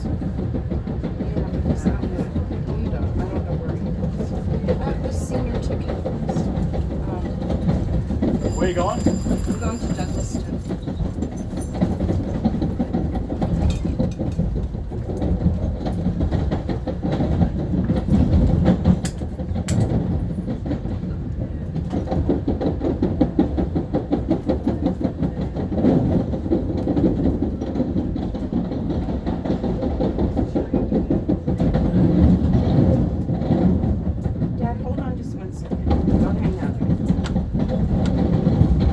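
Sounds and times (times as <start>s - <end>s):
rapid clicking of train wheels: 0.0s - 38.9s
train wheels rumbling on rail: 0.0s - 38.9s.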